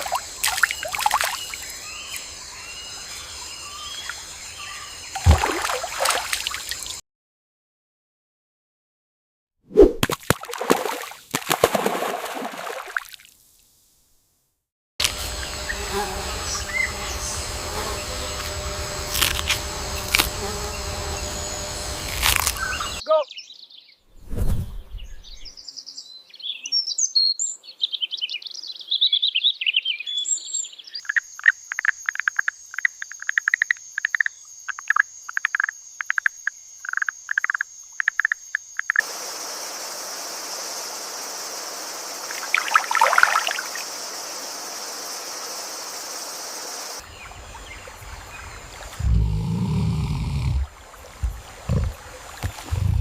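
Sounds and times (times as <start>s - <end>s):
dense insect hiss: 0.0s - 7.0s, 15.0s - 23.0s, 30.6s - 53.0s
high insect drone: 0.0s - 7.0s, 15.0s - 23.0s, 31.0s - 53.0s
birds chirping: 15.3s - 24.0s, 24.8s - 27.4s, 46.9s - 53.0s.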